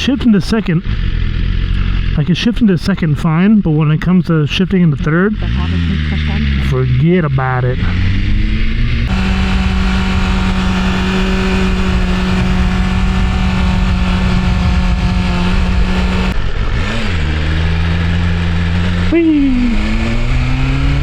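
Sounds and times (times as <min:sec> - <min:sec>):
motorcycle engine revving: 0:05.3 - 0:21.0
wind rush: 0:09.1 - 0:16.4.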